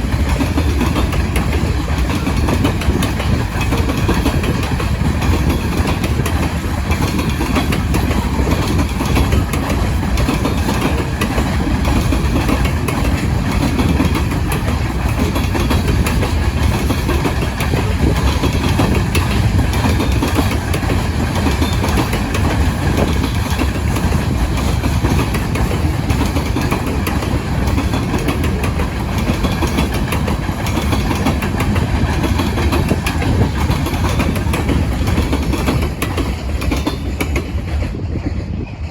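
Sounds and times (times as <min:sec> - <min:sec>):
freight cars rumbling on rail: 0:00.0 - 0:38.9
wheels clicking: 0:00.1 - 0:37.8.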